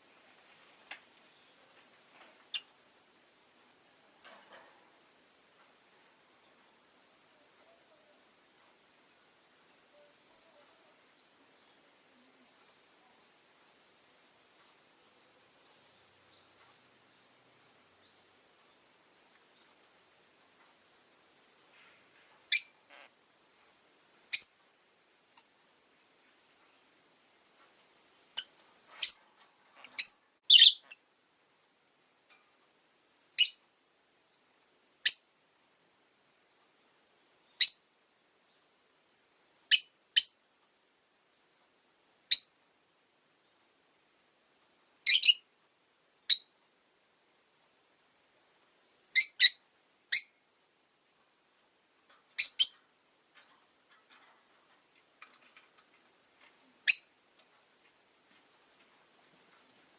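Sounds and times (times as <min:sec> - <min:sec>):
lovebirds chirping: 0:01.1 - 0:02.8, 0:09.0 - 0:19.9, 0:21.7 - 0:23.2, 0:24.3 - 0:24.7, 0:28.0 - 0:31.0, 0:33.4 - 0:33.6, 0:34.2 - 0:35.3, 0:36.8 - 0:38.8, 0:39.7 - 0:40.4, 0:42.3 - 0:42.6, 0:45.0 - 0:45.5, 0:46.3 - 0:46.6, 0:49.1 - 0:50.4, 0:52.3 - 0:54.2, 0:56.8 - 0:57.2.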